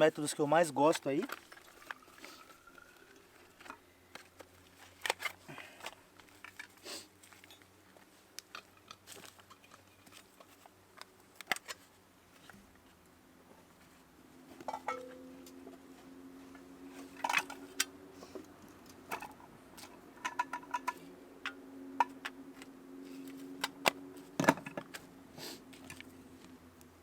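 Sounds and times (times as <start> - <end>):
dry sticks crunching and clicking: 1.0 - 12.6.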